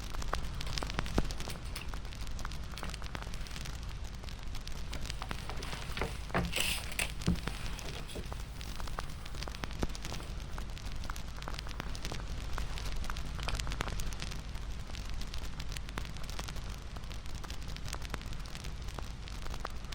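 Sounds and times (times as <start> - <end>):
bonfire crackling: 0.0 - 19.9.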